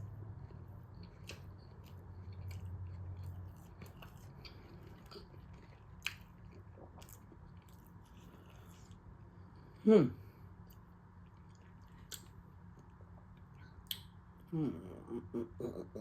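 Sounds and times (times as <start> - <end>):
close-up chewing: 0.3 - 9.6.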